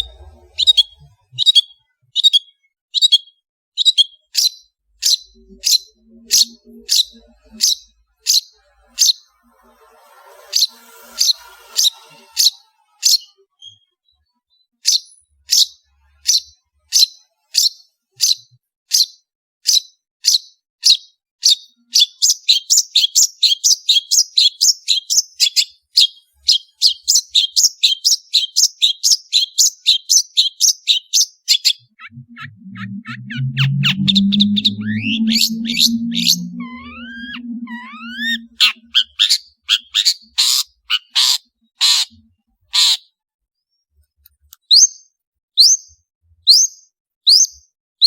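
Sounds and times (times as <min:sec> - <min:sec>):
low humming pitched tones: 0:00.0 - 0:01.4, 0:05.0 - 0:13.0, 0:31.9 - 0:38.9
bird calling high falling notes: 0:31.8 - 0:39.4.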